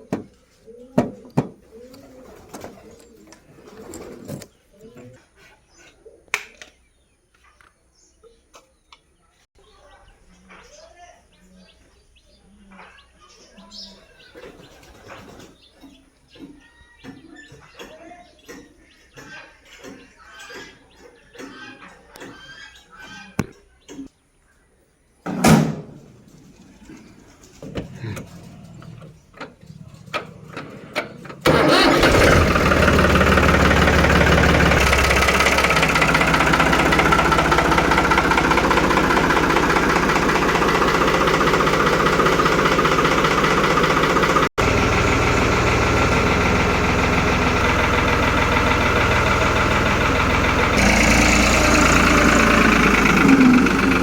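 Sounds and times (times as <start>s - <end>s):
tractor diesel engine running: 31.4s - 54.0s.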